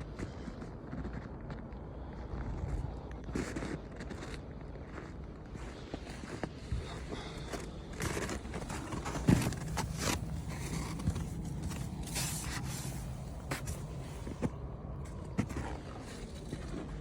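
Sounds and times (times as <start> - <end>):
car engine idling: 7.3 - 15.6.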